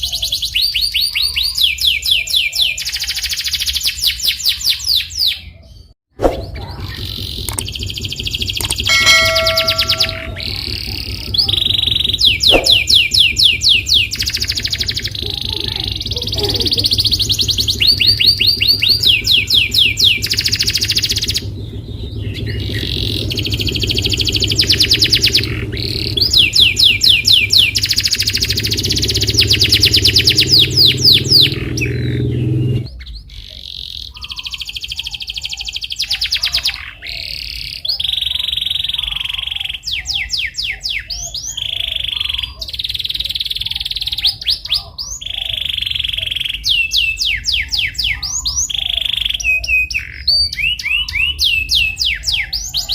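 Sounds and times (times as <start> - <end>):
low hum: 6.2 - 32.9
canary singing: 6.5 - 52.9.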